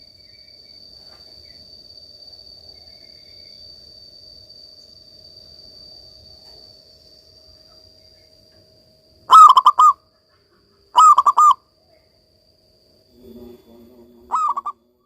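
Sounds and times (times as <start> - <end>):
dove cooing: 9.3 - 10.0, 11.0 - 11.6, 13.2 - 15.0
fainter lower-pitched bird call: 9.3 - 12.1, 13.3 - 15.0.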